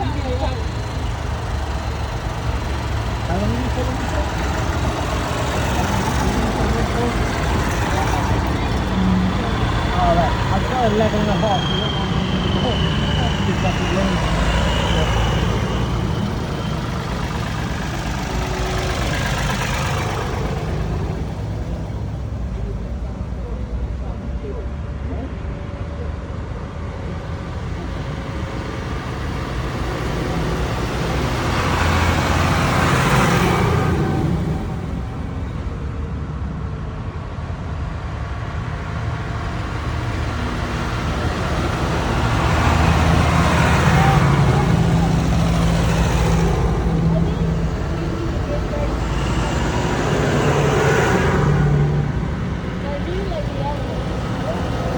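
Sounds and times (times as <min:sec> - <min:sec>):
tractor engine running: 0:00.0 - 0:24.4, 0:26.5 - 0:36.3, 0:37.5 - 0:54.9.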